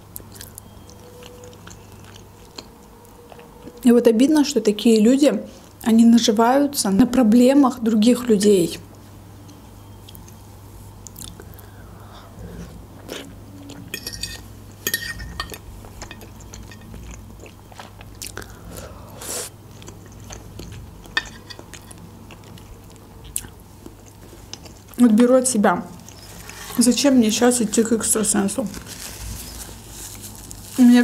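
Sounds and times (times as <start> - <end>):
close chewing of food: 0.2 - 3.8, 11.1 - 25.0.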